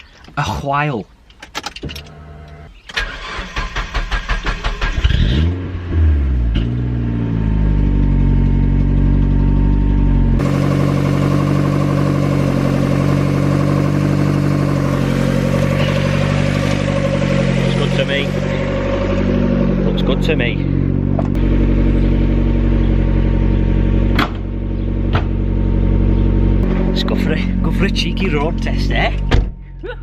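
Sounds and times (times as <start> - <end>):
engine cranked by starter: 1.8 - 5.7
car engine revving and idling: 1.9 - 29.7.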